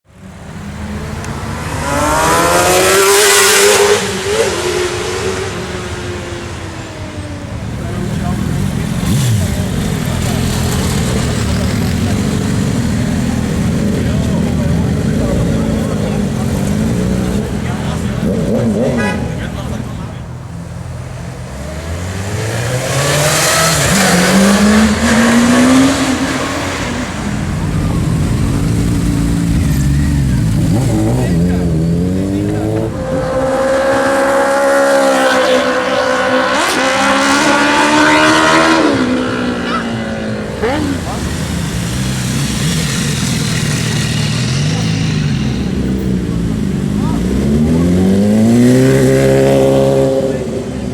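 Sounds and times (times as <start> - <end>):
motorcycle engine accelerating: 0.6 - 19.8, 21.6 - 50.9.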